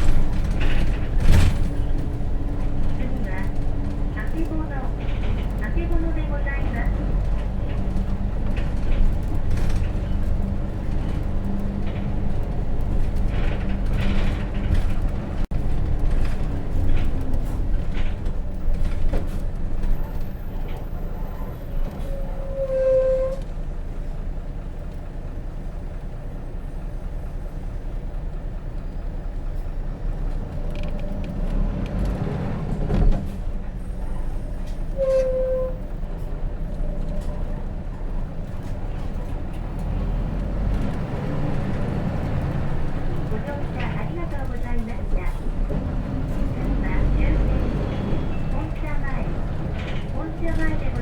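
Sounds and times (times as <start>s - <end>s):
body rattles and creaks: 0.0s - 22.1s, 36.0s - 51.0s
bus diesel engine running: 0.0s - 51.0s
brake squeal: 19.8s - 23.5s, 33.8s - 36.4s, 46.2s - 51.0s.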